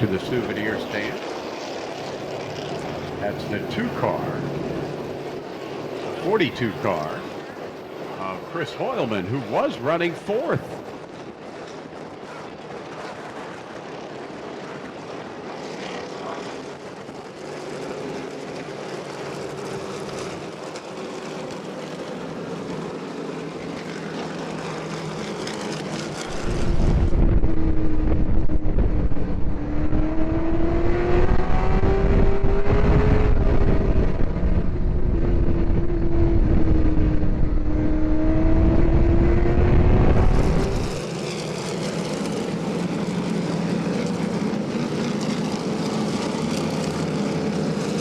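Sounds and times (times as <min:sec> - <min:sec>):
race car engines droning: 0:00.0 - 0:48.0
heavy low rumble: 0:26.3 - 0:30.5.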